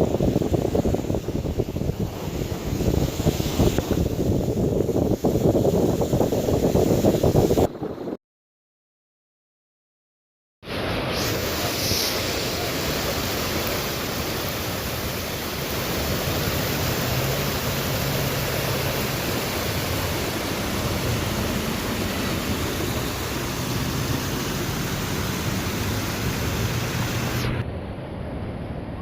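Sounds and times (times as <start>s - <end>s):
heavy rain pouring: 0.0s - 7.9s, 10.6s - 27.6s.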